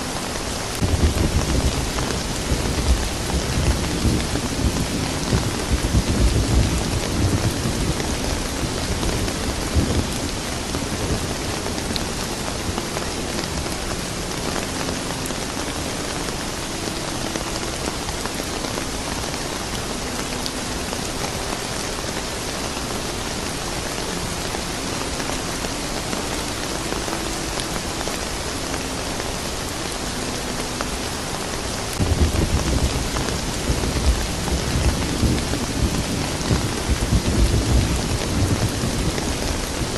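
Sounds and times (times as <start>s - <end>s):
steady rain: 0.0s - 39.9s
rolling thunder: 0.8s - 12.8s, 32.0s - 39.9s.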